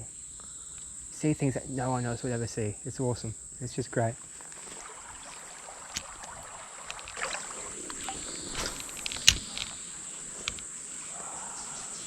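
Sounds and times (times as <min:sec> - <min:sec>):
insects droning: 0:00.0 - 0:12.0
person wading through water: 0:04.0 - 0:11.8.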